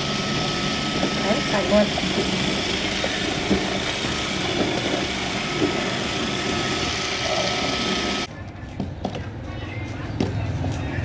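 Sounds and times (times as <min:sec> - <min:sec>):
machine running steadily: 0:00.0 - 0:08.3.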